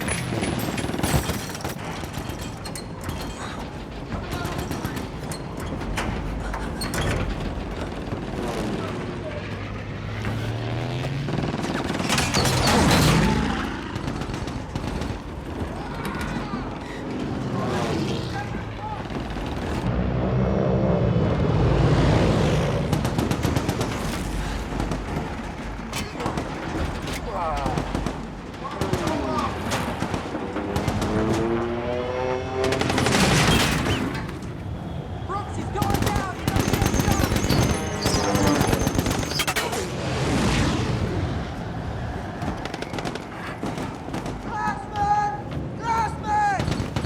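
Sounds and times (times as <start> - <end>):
machine-gun fire: 0.0 - 19.9, 22.4 - 47.0
propeller aircraft engines droning: 1.6 - 47.0
rushing noise: 19.8 - 25.9, 32.9 - 45.0.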